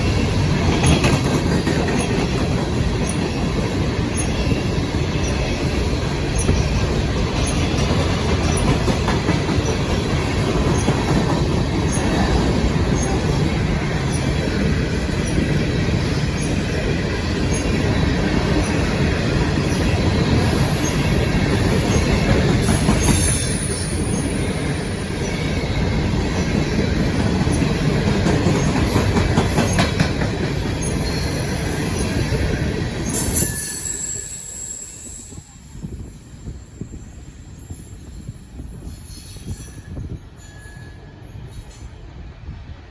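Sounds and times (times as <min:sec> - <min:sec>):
train cars rolling past: 0:00.0 - 0:42.9
high-pitched wheel squeal: 0:33.1 - 0:35.5.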